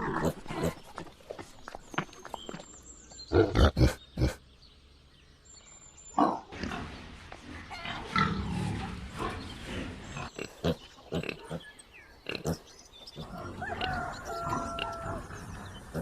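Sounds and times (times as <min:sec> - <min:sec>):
animal calls: 0:13.2 - 0:16.0.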